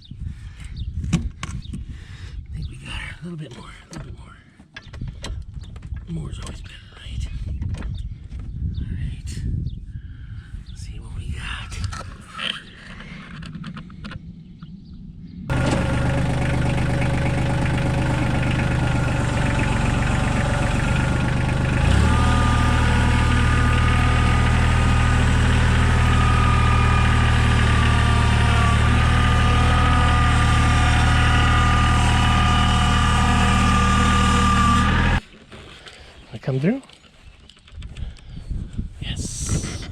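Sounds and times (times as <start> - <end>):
motor-driven machine running: 15.5 - 35.2.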